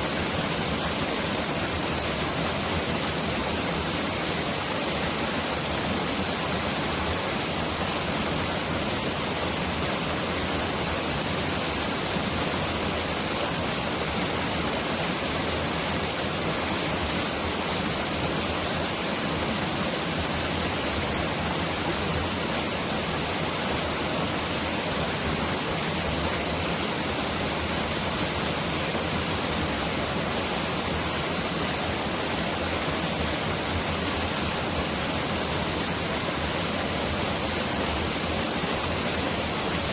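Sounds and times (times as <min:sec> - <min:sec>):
stream rushing water: 0:00.0 - 0:39.9.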